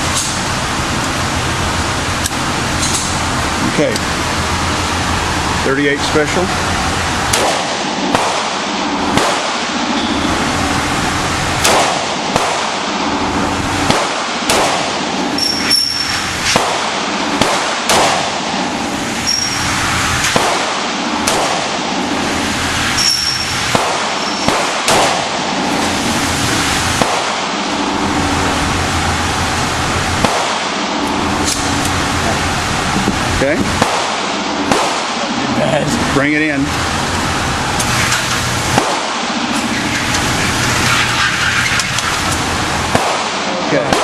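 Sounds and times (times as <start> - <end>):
steady background hiss: 0.0 - 44.0
revolver gunshots: 7.2 - 10.2, 11.5 - 19.4, 20.2 - 22.6, 23.3 - 26.3, 26.9 - 28.0, 30.1 - 31.7, 33.4 - 35.4, 38.6 - 44.0.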